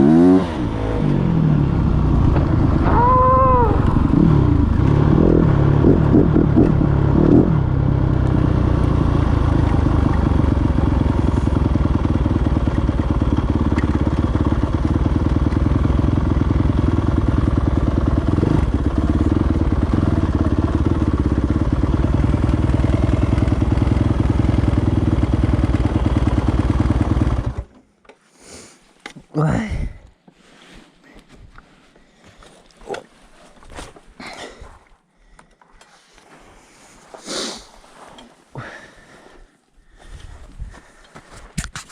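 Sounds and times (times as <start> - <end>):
dirt bike engine revving: 0.0 - 27.7.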